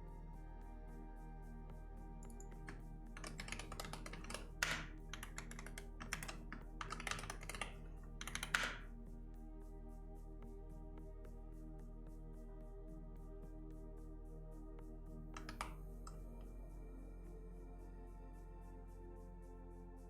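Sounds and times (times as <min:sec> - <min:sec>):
soft background music: 0:00.0 - 0:20.0
typing on computer keyboard: 0:02.7 - 0:08.8, 0:15.4 - 0:15.7.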